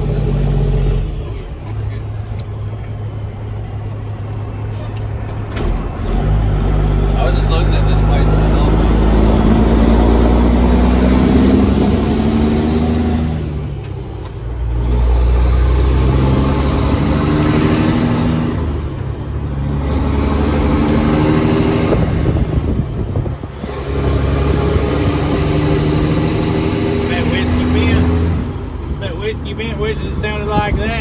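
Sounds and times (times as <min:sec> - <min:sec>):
diesel truck engine accelerating: 0:00.0 - 0:31.0.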